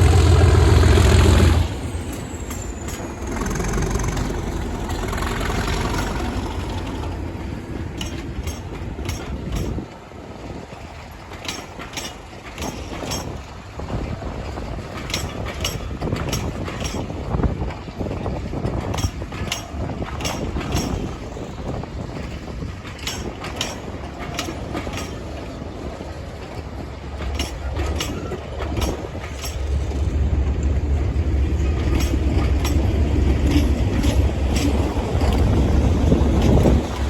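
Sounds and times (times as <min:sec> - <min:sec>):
diesel locomotive engine droning: 0:00.0 - 0:37.0
wheel clicks on rail joints: 0:02.1 - 0:30.8, 0:31.5 - 0:37.0.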